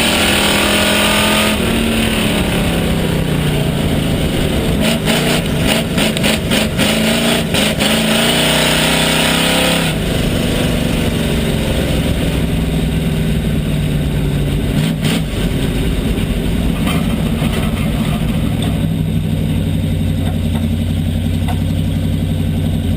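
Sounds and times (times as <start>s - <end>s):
race car engine running: 0.0s - 22.9s
sharp engine knocks: 20.1s - 22.0s.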